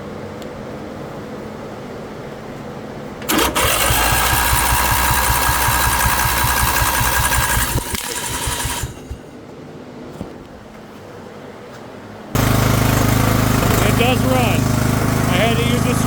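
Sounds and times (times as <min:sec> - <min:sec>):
lawn tractor engine cranking: 0:03.2 - 0:09.3, 0:12.4 - 0:16.0.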